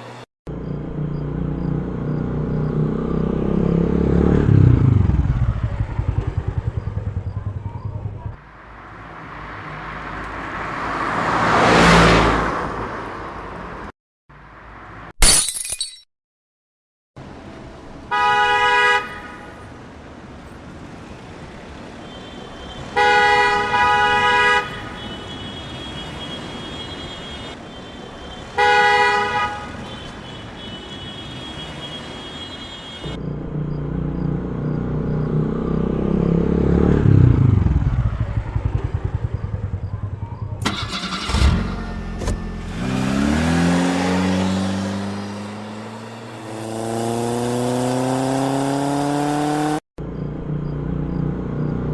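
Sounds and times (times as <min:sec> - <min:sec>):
engine rumbling and revving: 0:00.5 - 0:08.4, 0:33.0 - 0:51.9
vehicle horn honking: 0:18.1 - 0:19.6, 0:22.0 - 0:33.2, 0:40.6 - 0:42.8.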